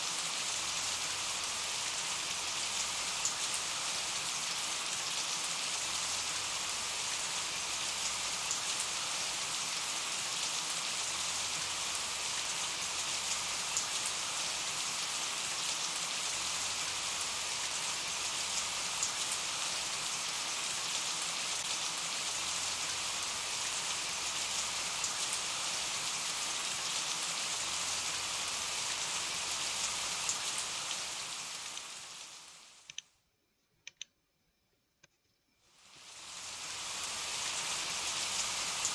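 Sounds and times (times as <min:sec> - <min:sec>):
steady rain hiss: 0:00.0 - 0:33.0, 0:35.7 - 0:38.9
faint raindrop ticks: 0:31.7 - 0:32.0.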